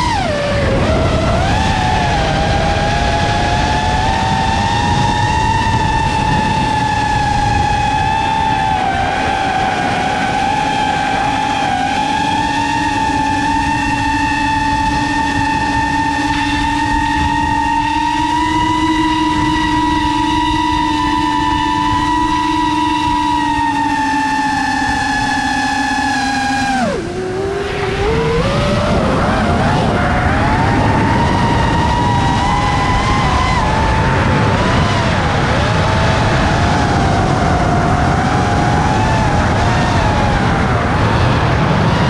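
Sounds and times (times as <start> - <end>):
drone motors whining: 0.0 - 42.0
rushing air noise: 0.0 - 42.0
wind rushing: 26.6 - 42.0.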